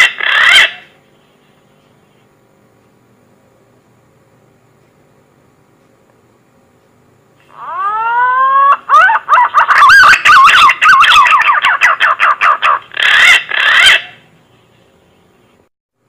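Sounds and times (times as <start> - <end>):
pigeon whistling call: 7.6 - 14.2.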